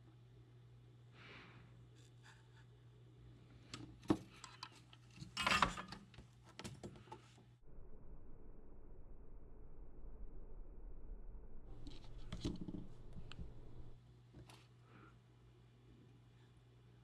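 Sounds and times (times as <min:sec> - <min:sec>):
low steady hum: 0:07.6 - 0:17.0
tool scratching: 0:11.7 - 0:14.0.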